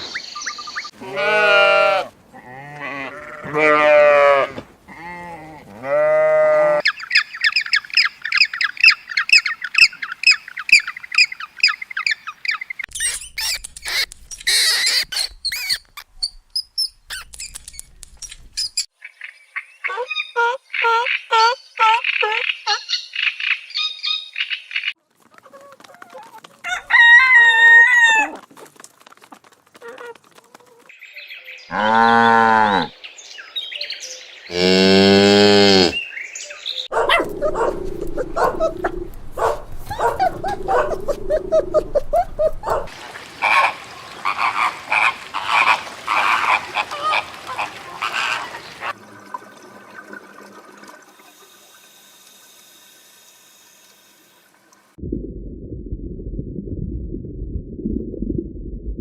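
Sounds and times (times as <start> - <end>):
cow mooing: 1.0 - 6.8, 31.7 - 32.9, 34.5 - 36.0
rapid repeated animal calls: 36.9 - 48.6
low rumbling noise: 55.0 - 59.0.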